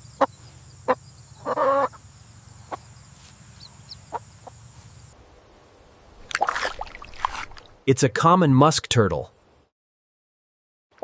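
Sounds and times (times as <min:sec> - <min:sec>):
chicken clucking: 0:00.2 - 0:02.0.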